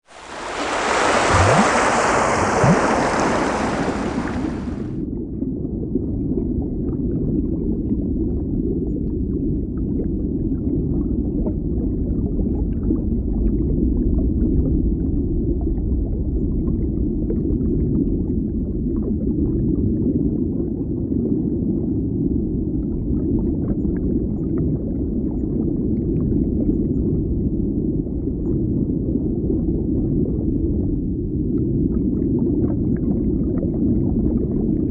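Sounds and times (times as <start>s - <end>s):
muffled underwater rumble: 0.1s - 34.9s.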